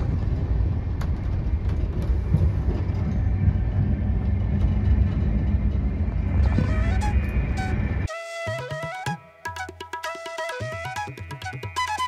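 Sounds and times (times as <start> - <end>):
train coach rumbling: 0.0 - 8.1.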